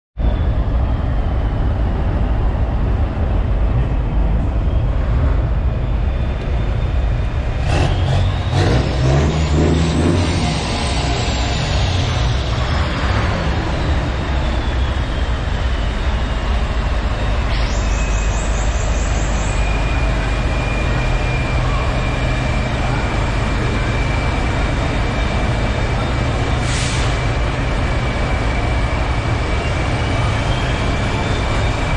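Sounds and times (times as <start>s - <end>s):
diesel truck engine rumble: 0.2s - 31.9s
high whine falling in pitch: 5.4s - 26.4s.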